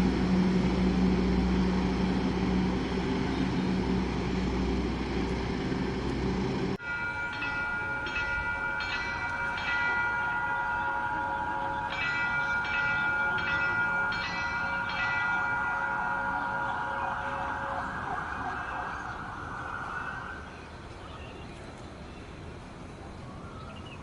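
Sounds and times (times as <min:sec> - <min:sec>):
diesel locomotive engine drone: 0:00.0 - 0:24.0
ringing high-tone signal: 0:06.8 - 0:18.8.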